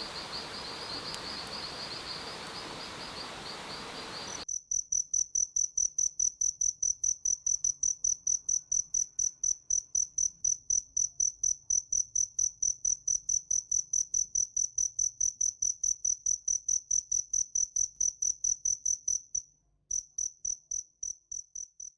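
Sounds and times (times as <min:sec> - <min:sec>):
cricket chirping: 0:00.0 - 0:12.5.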